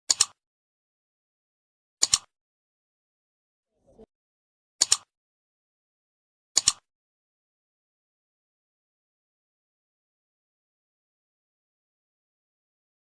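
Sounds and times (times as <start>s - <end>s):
sharp double clicks: 2.0s - 2.3s, 4.8s - 5.1s, 6.6s - 6.9s.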